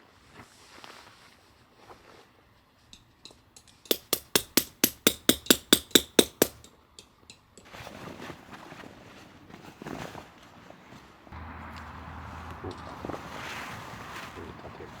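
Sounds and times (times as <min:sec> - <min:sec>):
hammer striking tent peg: 0:03.8 - 0:07.1.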